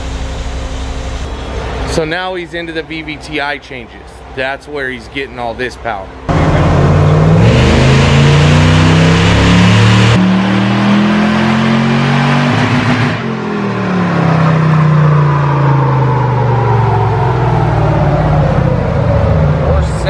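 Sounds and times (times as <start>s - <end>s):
truck engine revving: 6.3s - 20.0s.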